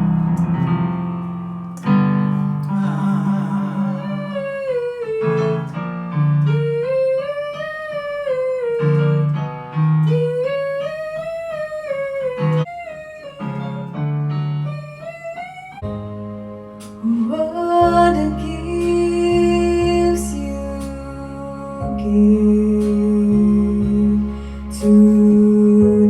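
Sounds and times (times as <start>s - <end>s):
piano chords: 0.0s - 26.0s
person singing wordless phrases: 2.7s - 5.7s, 17.0s - 26.0s.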